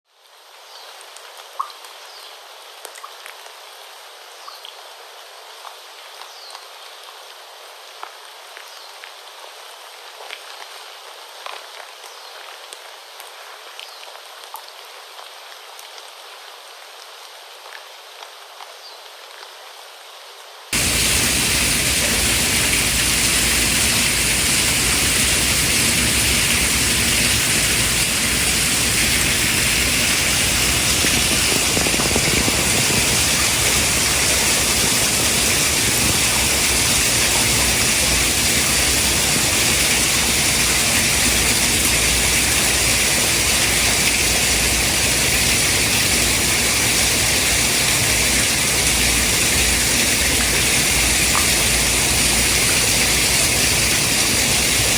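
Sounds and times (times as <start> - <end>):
loud white noise hiss: 20.8 - 54.9.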